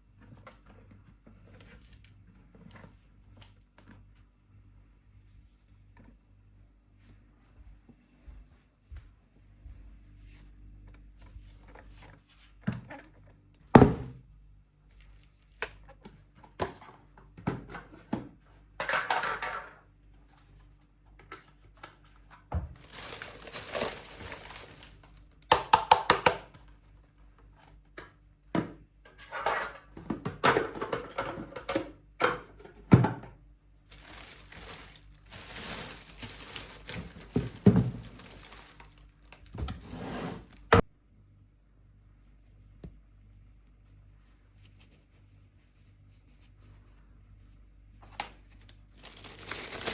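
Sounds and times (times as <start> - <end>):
rustling and crinkling: 20.3 - 25.4, 33.9 - 40.8, 41.9 - 49.9
objects knocking when set down: 34.0 - 39.0.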